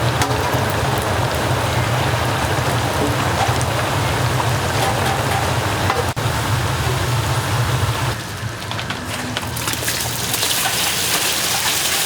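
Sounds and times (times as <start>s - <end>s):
dumplings sizzling in oil: 9.5s - 12.0s.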